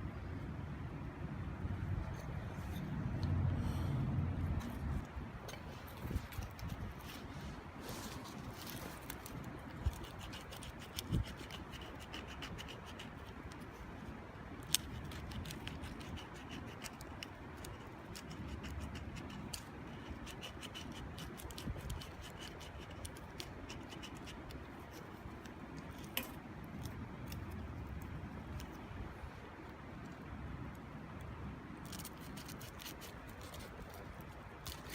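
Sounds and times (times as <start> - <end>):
low rushing background: 0.0 - 6.9.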